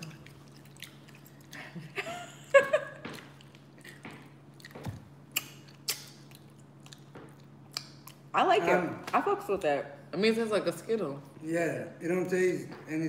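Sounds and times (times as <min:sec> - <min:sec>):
candy chewing mouth sounds: 0:00.0 - 0:02.0, 0:03.1 - 0:08.3.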